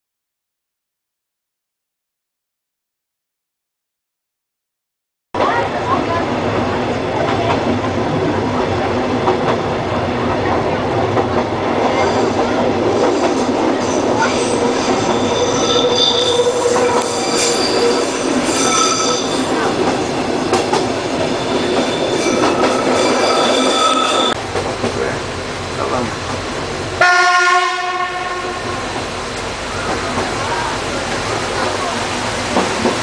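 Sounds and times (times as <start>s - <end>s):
train running rumble: 5.4s - 33.0s
wheels squealing on curves: 13.9s - 19.6s, 21.3s - 24.4s.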